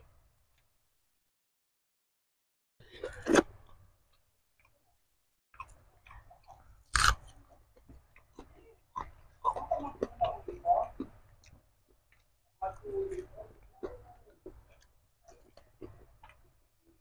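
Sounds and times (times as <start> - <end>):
close chewing and biting: 5.6 - 17.0
loud crunches: 6.9 - 7.2.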